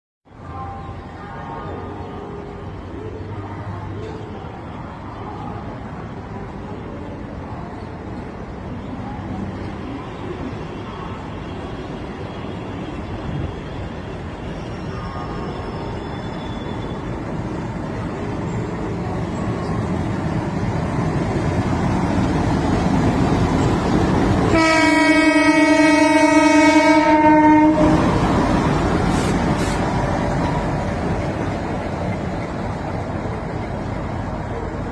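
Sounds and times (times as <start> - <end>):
train rail rumble: 0.3 - 34.9
train horn: 24.5 - 28.2.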